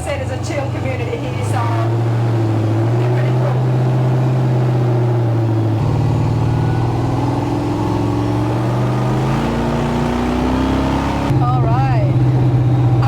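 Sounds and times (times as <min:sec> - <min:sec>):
truck engine driving: 0:00.0 - 0:13.0.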